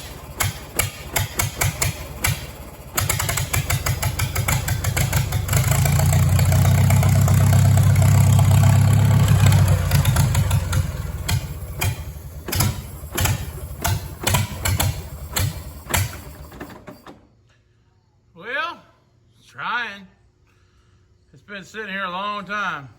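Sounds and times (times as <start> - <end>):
tractor engine running and stalling: 0.0 - 17.2.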